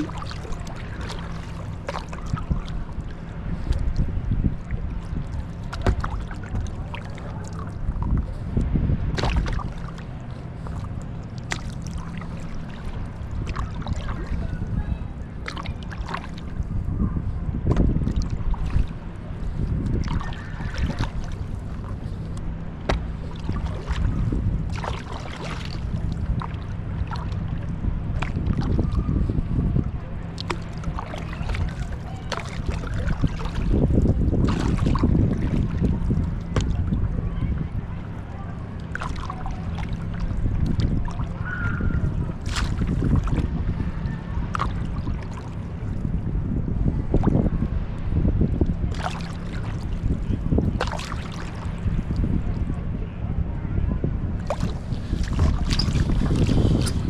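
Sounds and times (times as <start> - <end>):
paddle splashing water: 0.0 - 52.8, 54.2 - 57.0
wind rumble on microphone: 0.0 - 57.0.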